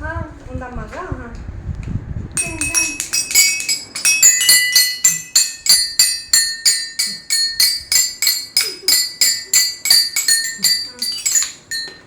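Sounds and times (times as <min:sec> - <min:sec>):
toy xylophone being struck: 0:02.4 - 0:12.0.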